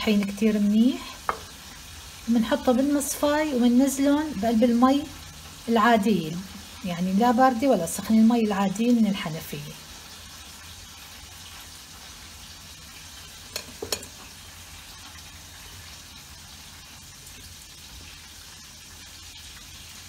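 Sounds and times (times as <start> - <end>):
chicken deep-frying in oil: 0.0 - 20.0
knocks on metal colander: 13.5 - 14.1.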